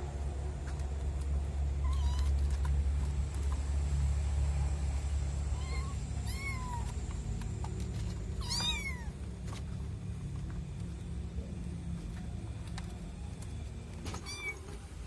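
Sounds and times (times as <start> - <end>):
steady low hum: 0.0 - 15.0
kitten meowing: 1.8 - 2.3, 5.6 - 6.9, 8.4 - 9.1.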